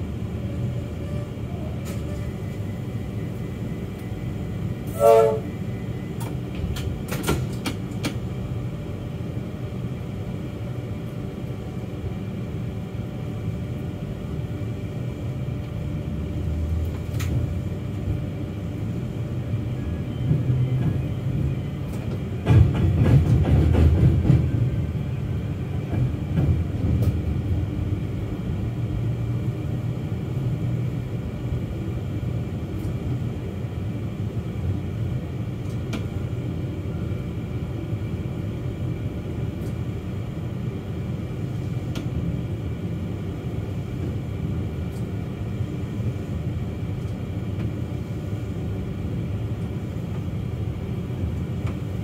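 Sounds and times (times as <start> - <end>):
electric train rumbling on rails: 0.0 - 52.0.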